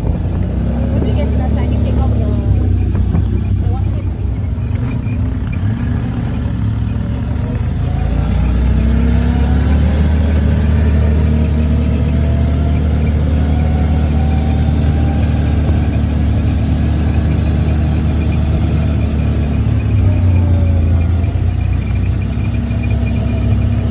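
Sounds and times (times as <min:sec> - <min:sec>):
vehicle engine running under load: 0:00.0 - 0:23.9.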